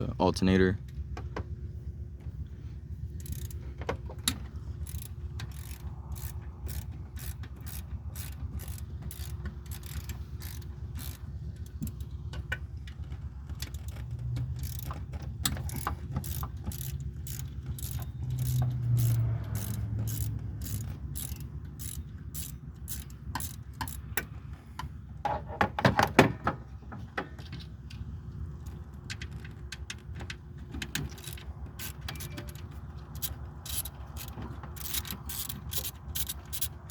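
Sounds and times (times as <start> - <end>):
steady low hum: 0.0 - 25.3
socket ratchet wrench clicking: 3.2 - 3.6, 4.2 - 12.2, 13.0 - 24.9, 30.8 - 36.9
metal clatter: 3.2 - 36.9.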